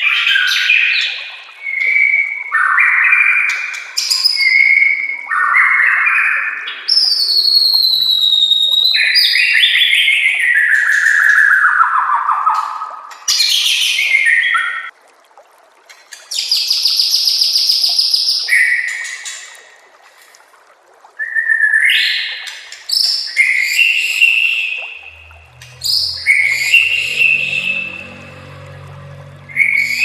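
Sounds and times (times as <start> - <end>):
shama singing whistled phrases: 6.9 - 9.6, 23.0 - 30.0
faint low hum: 24.8 - 30.0.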